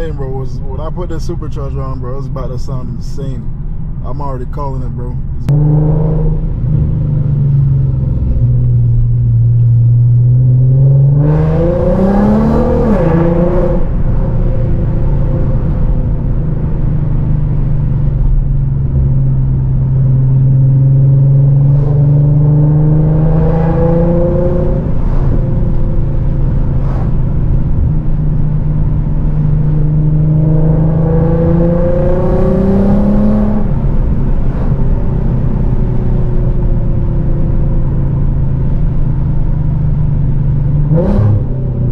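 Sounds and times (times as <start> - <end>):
car engine and exhaust revving: 4.7 - 41.9.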